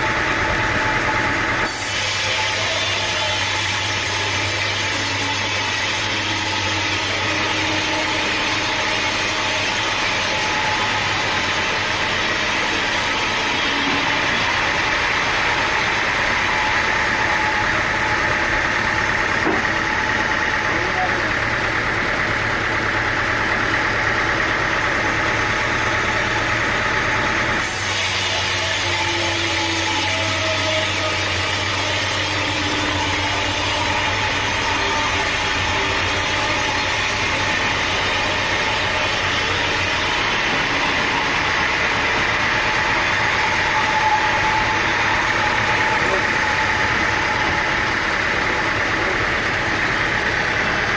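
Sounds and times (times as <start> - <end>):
sawmill engine running: 0.0 - 50.9.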